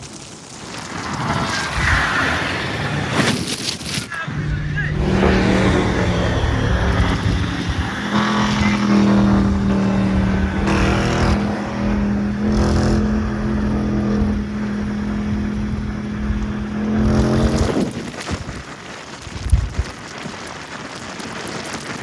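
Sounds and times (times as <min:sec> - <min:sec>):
car engine droning: 0:04.3 - 0:18.0.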